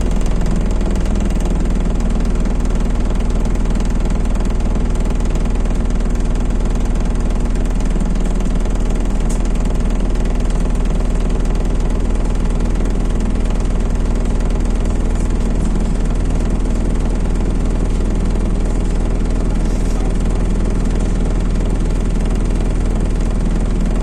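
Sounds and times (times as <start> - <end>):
bus engine drone: 7.5 - 23.3.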